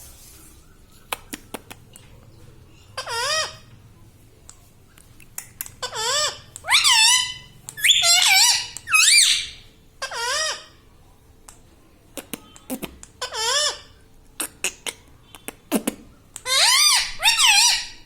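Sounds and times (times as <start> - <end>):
parakeet squeaky calls: 2.8 - 3.7, 5.8 - 10.8, 13.2 - 14.0, 16.4 - 18.0.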